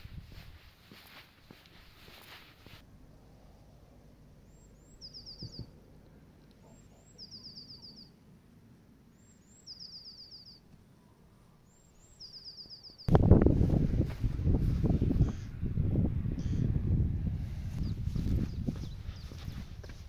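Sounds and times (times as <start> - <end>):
songbird singing high notes and trill: 4.4 - 5.7, 6.7 - 8.2, 9.1 - 10.7, 11.6 - 13.1
soft low rumble: 13.1 - 20.0.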